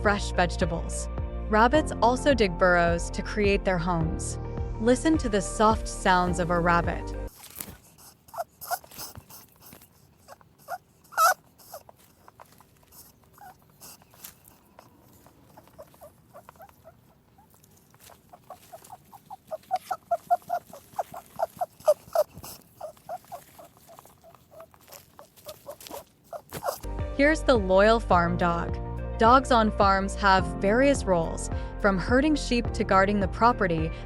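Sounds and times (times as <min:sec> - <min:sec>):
rabbit clicking and ticking: 0:07.3 - 0:26.9.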